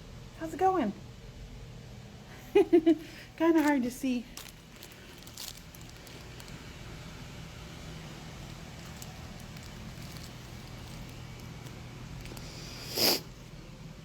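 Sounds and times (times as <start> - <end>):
room hum and hiss: 0.0 - 14.0
faint clicks and rustles: 3.2 - 13.6.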